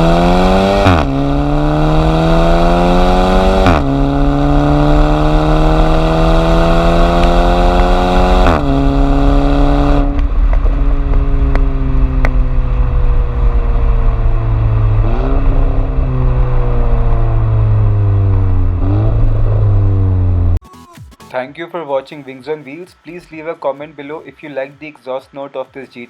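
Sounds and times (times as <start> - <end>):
car engine accelerating hard: 0.0 - 20.6
exhaust cracks: 0.0 - 20.6.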